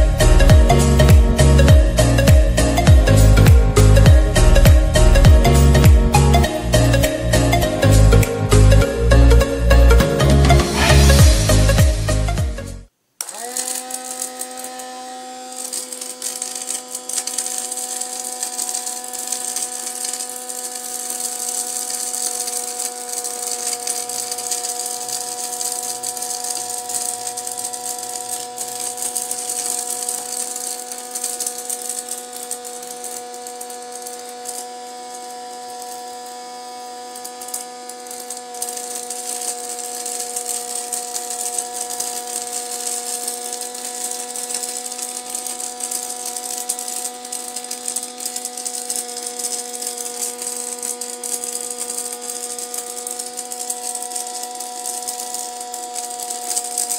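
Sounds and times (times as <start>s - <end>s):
rushing air hiss: 0.0s - 12.8s
small electric motor whining: 0.0s - 56.9s.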